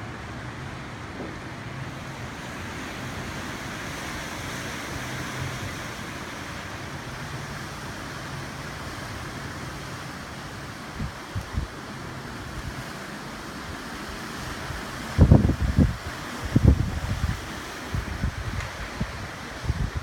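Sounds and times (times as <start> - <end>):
strong gusty wind: 0.0 - 20.0
wind buffeting microphone: 10.7 - 12.9, 13.6 - 20.0.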